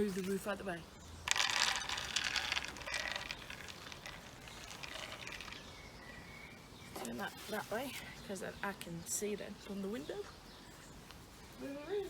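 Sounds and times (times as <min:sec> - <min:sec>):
quiet outdoor background: 0:00.0 - 0:12.0
objects rattling and scraping: 0:01.3 - 0:05.8.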